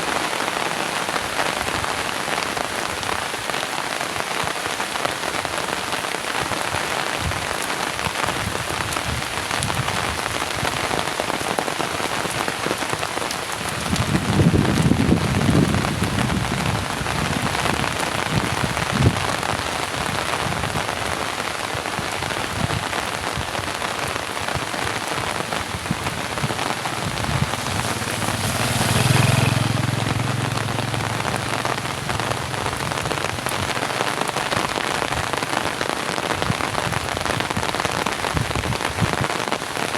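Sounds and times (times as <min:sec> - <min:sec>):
heavy rain pouring: 0:00.0 - 0:39.9
low rumble: 0:25.5 - 0:34.4.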